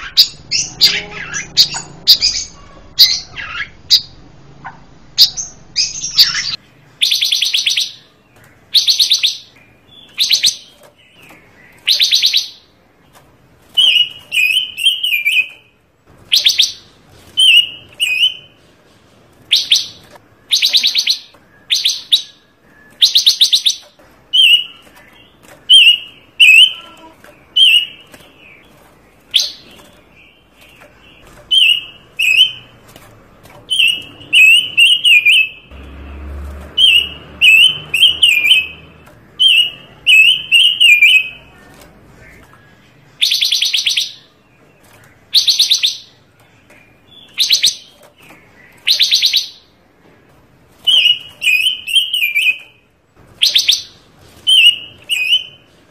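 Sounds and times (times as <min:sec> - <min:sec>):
songbird warbled chirps: 0:00.0 - 0:12.8, 0:19.5 - 0:28.7, 0:47.1 - 0:49.7.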